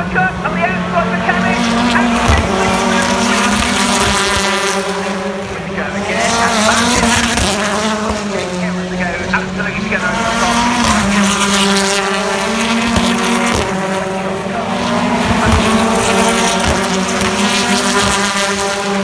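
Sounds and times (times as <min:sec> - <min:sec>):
racing car engines at high revs: 0:00.0 - 0:19.0.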